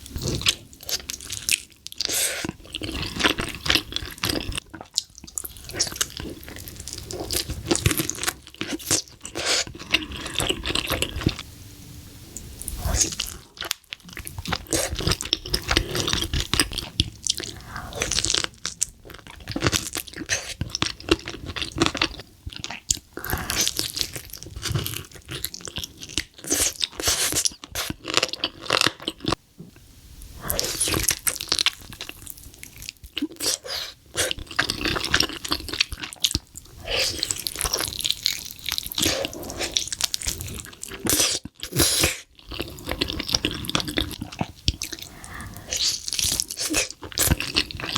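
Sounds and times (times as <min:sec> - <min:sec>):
crunching bites and chewing: 0:30.5 - 0:47.9.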